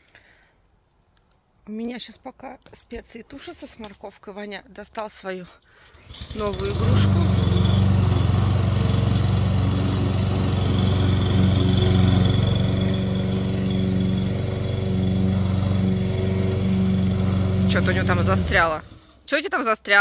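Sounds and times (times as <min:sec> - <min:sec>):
lawn mower engine running: 0:06.0 - 0:19.2.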